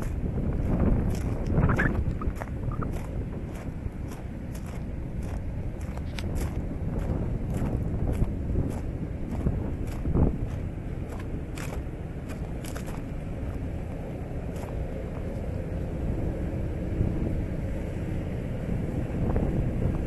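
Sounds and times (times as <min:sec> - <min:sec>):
wind buffeting microphone: 0:00.0 - 0:20.0
sharp ticks: 0:01.4 - 0:02.9.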